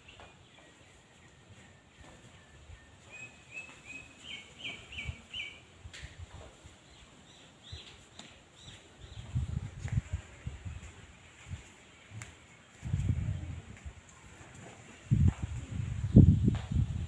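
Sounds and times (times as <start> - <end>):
bird chirping: 0.0 - 5.7.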